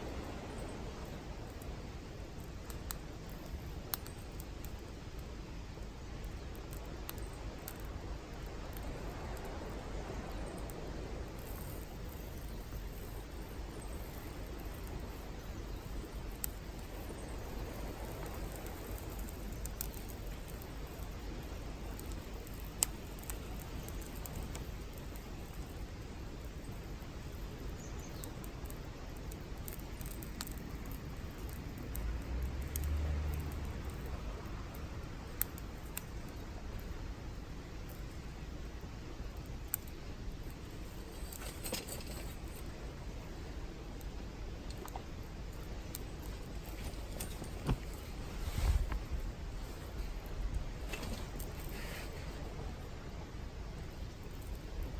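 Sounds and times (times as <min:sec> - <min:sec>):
campfire hissing: 0:00.0 - 0:54.9
firewood popping: 0:11.4 - 0:34.2, 0:44.0 - 0:52.4.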